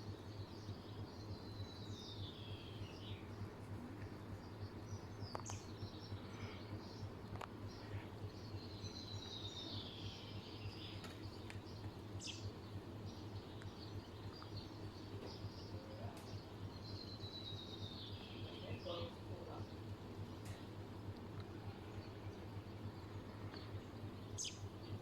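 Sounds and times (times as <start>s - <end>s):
faint birdsong: 0.0s - 25.0s
steady low hum: 0.0s - 25.0s
light clicks: 11.0s - 11.7s, 20.4s - 21.6s.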